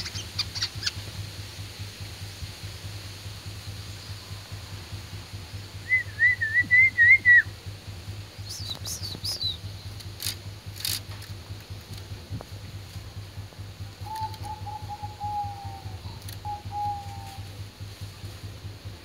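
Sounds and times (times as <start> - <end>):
songbird warbling whistle: 0.0 - 1.0, 5.8 - 7.6, 8.4 - 9.7, 14.0 - 17.6
high chirps: 0.0 - 1.2, 8.3 - 10.1
steady low hum: 0.0 - 19.0
sharp high clicks: 8.4 - 12.2, 14.1 - 14.6.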